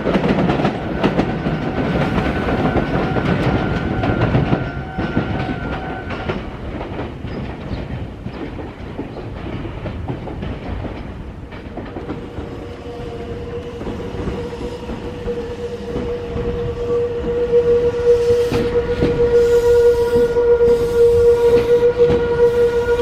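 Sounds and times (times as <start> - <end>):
train wheels clicking over rails: 0.0 - 23.0
steady high tone: 12.1 - 21.2.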